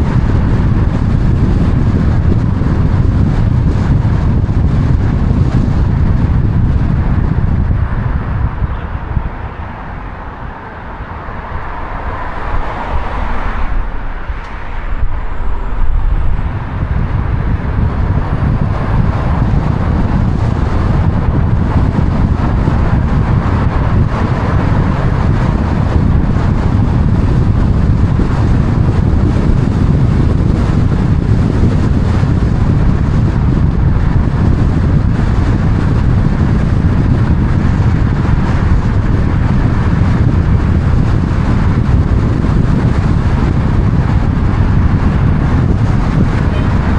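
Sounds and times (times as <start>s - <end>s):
vehicle rumbling: 0.0s - 46.9s
wind noise: 0.0s - 46.9s.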